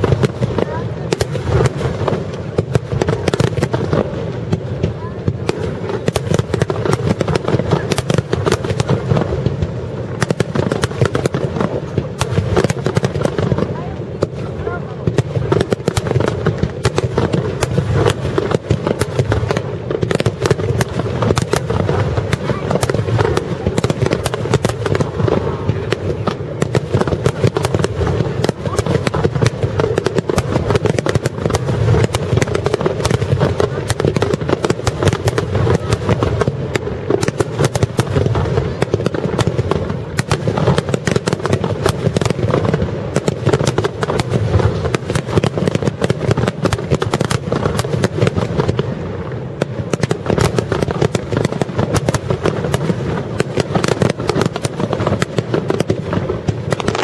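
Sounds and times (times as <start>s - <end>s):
firework shells bursting: 15.1s - 48.8s.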